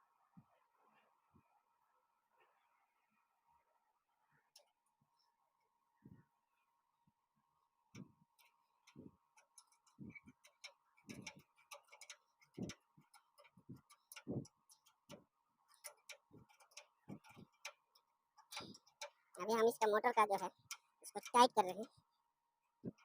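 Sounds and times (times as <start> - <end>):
hand tools clicking on metal: 9.4 - 21.9.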